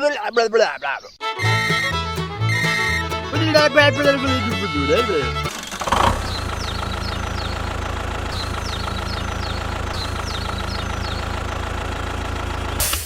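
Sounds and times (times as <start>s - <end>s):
high falling chirps: 1.2s - 5.6s
engine idling: 1.3s - 13.0s.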